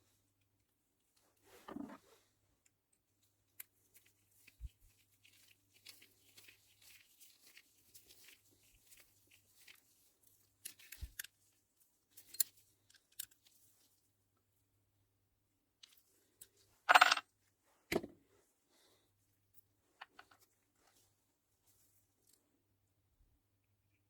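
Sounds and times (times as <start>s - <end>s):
small parts clicking and scraping: 2.9s - 11.5s, 12.1s - 13.8s, 15.8s - 17.2s.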